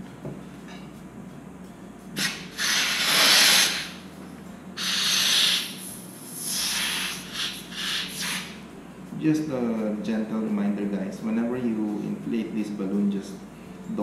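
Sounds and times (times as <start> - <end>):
helium hissing from a nozzle: 2.2 - 4.0, 4.8 - 8.6.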